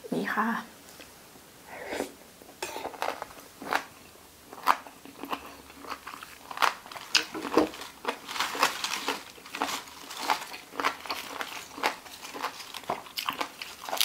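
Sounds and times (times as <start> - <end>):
person chewing crunchy food: 2.6 - 14.0.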